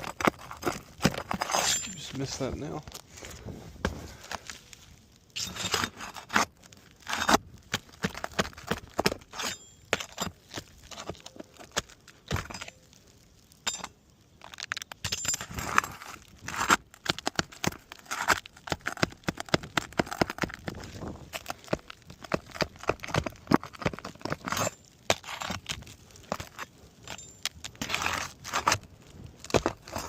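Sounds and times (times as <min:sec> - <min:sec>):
pry tool clinking and scraping: 0:00.0 - 0:02.3, 0:05.4 - 0:06.5, 0:09.2 - 0:12.9, 0:13.6 - 0:14.0, 0:14.6 - 0:16.0, 0:24.4 - 0:25.6, 0:26.2 - 0:28.8.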